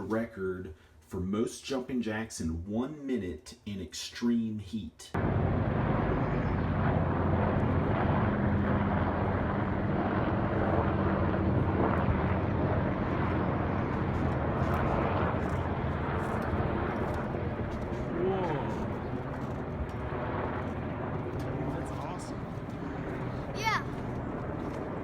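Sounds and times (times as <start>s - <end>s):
helicopters flying overhead: 5.2s - 25.0s.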